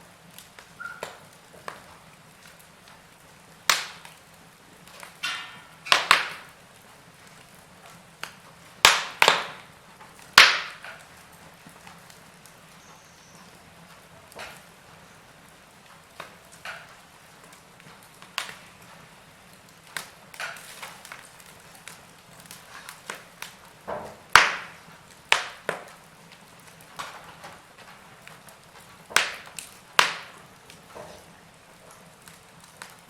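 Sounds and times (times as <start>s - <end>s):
faint fire hiss: 0.0s - 33.0s
logs crackling in fireplace: 0.0s - 33.0s
sharp fire pops: 0.2s - 13.6s, 14.3s - 33.0s.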